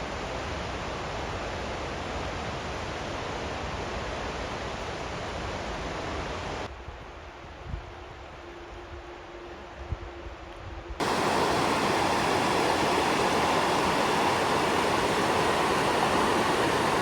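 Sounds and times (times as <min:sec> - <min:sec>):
waterfall rushing: 0:11.0 - 0:17.0.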